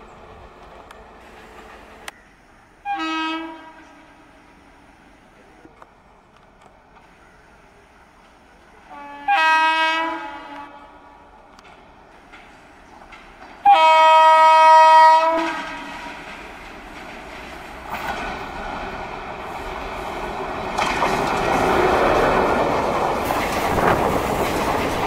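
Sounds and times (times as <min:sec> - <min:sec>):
train rumbling past: 0:00.0 - 0:25.0
locomotive horn blast: 0:02.8 - 0:04.7, 0:08.8 - 0:11.1, 0:13.6 - 0:16.2.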